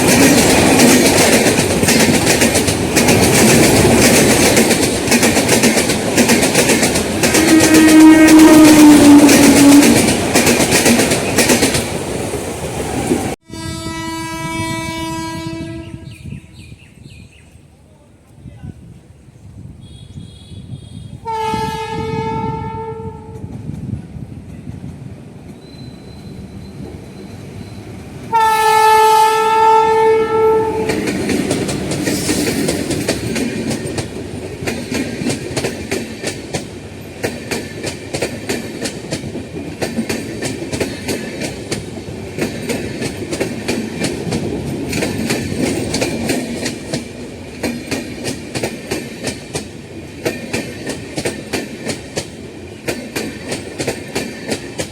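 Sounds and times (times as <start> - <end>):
train wheels clattering on rails: 0.0 - 13.4, 29.6 - 54.9
train horn blasts: 7.3 - 10.1, 13.4 - 16.6, 19.8 - 23.6, 28.3 - 31.1.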